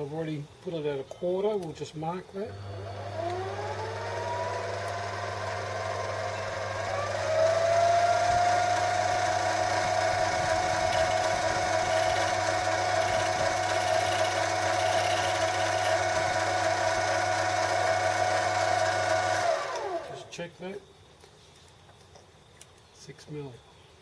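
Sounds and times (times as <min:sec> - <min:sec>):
lathe motor whining: 0:02.4 - 0:20.3.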